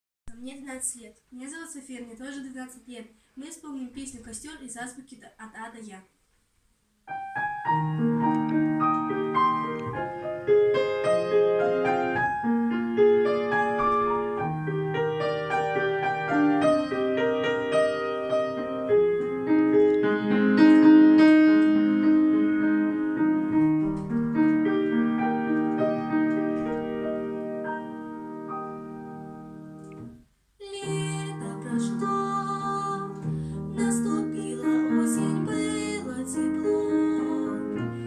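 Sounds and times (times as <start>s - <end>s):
grand piano playing: 7.1s - 30.2s, 30.9s - 38.0s.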